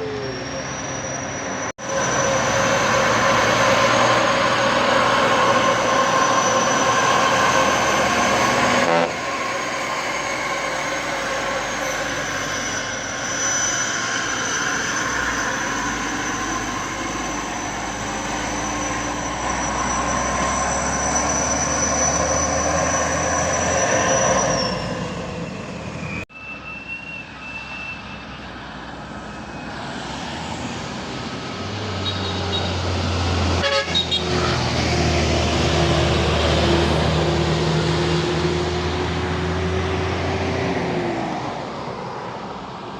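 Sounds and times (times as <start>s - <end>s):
heavy engine running: 0.0s - 22.8s
truck and road traffic: 0.0s - 42.9s
horn sounds: 8.8s - 9.4s, 33.6s - 34.6s.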